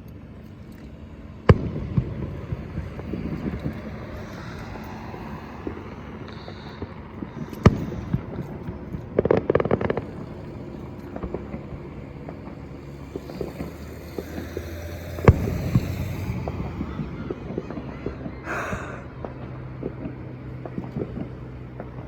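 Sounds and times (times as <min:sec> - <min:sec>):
crackling firework pops: 0:00.8 - 0:04.7, 0:06.4 - 0:17.8, 0:19.2 - 0:22.0
low rumble: 0:01.0 - 0:22.0
firework bang: 0:01.5 - 0:04.0, 0:11.0 - 0:17.9.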